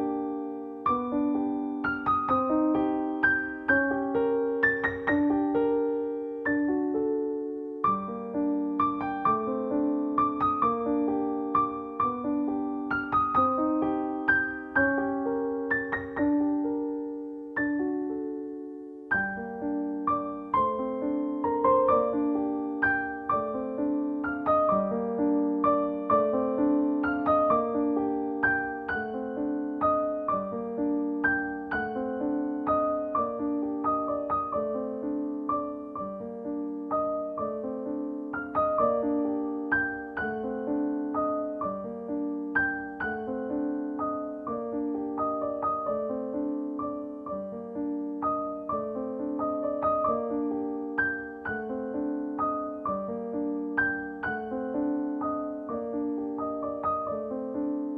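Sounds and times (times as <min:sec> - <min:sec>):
gentle piano music: 0:00.0 - 0:57.9.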